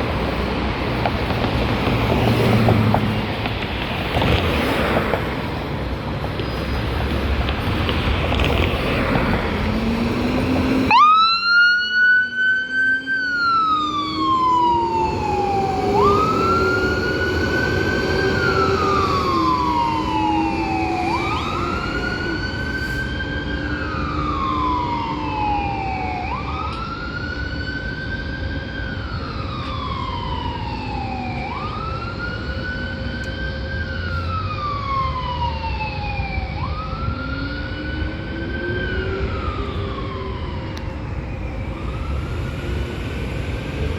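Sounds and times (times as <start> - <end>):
emergency siren wailing: 7.6 - 43.9
rushing noise: 12.3 - 26.1.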